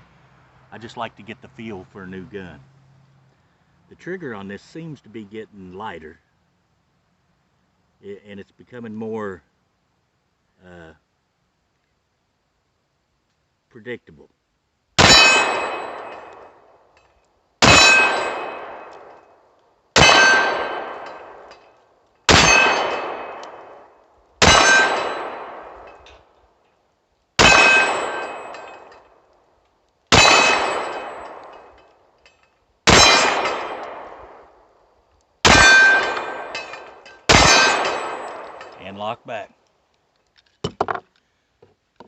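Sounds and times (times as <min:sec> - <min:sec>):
ringing clang of metal: 0:15.0 - 0:16.4, 0:17.6 - 0:18.8, 0:20.0 - 0:23.4, 0:24.4 - 0:26.2, 0:27.4 - 0:29.1, 0:30.2 - 0:33.7, 0:35.5 - 0:38.8
pistol shots: 0:15.0 - 0:16.6, 0:17.6 - 0:19.2, 0:20.0 - 0:21.5, 0:22.3 - 0:26.0, 0:27.4 - 0:29.1, 0:30.1 - 0:31.8, 0:32.9 - 0:34.6, 0:35.4 - 0:38.8.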